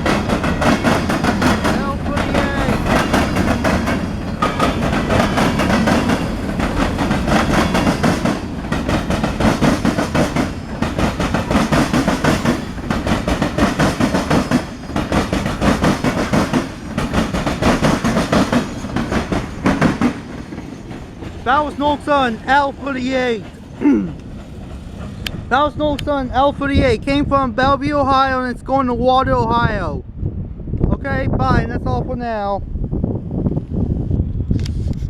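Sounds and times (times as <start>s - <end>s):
train wheels clacking on rail joints: 0.0s - 26.2s.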